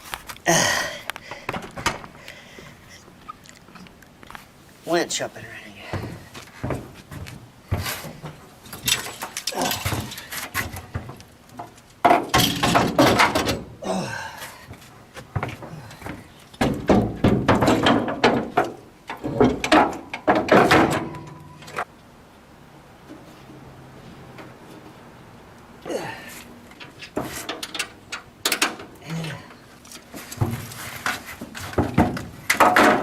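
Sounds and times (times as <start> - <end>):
heavy equipment knocks and clatter: 5.9 - 13.7, 15.3 - 21.8, 31.5 - 33.0.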